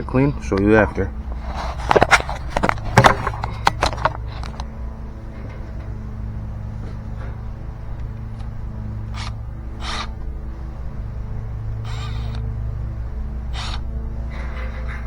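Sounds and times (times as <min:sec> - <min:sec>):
low machine hum: 0:00.0 - 0:15.0
sharp clicks and scrapes: 0:01.3 - 0:04.7, 0:09.1 - 0:10.2, 0:11.8 - 0:12.5.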